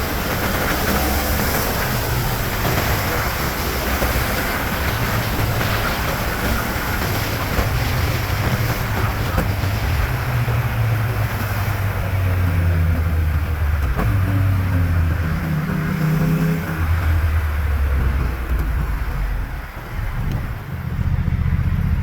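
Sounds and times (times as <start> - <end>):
motorcycle engine running: 11.7 - 22.0.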